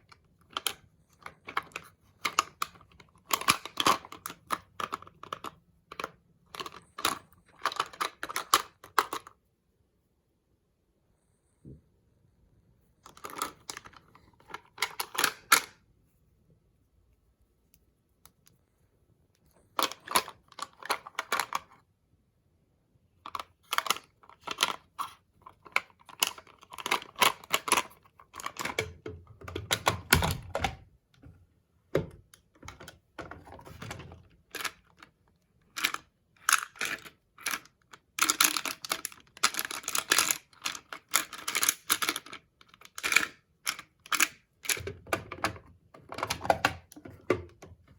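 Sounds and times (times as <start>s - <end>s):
plastic caps clicking and tapping: 0.0s - 9.3s, 13.0s - 15.8s, 23.3s - 31.3s, 35.7s - 47.9s.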